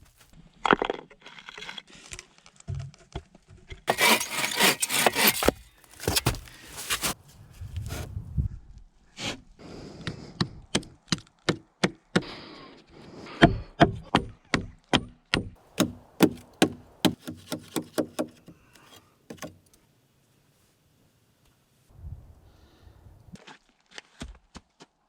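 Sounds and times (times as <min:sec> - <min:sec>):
wood chopping strikes: 0:03.9 - 0:07.2, 0:14.2 - 0:18.5.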